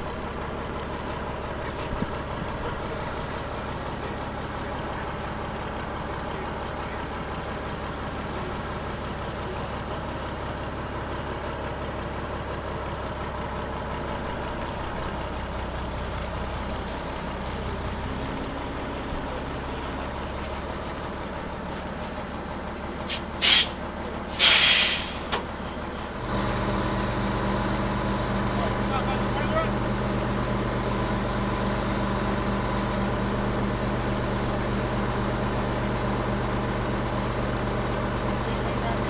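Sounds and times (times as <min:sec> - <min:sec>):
heavy truck engine running: 0:00.0 - 0:39.0
loud air hiss bursts: 0:23.1 - 0:25.4.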